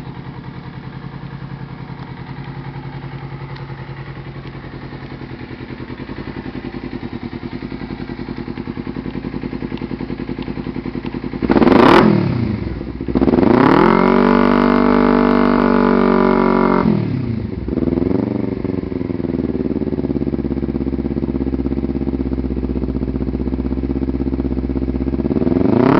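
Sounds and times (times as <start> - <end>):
motorcycle engine idling and revving: 0.0 - 25.9.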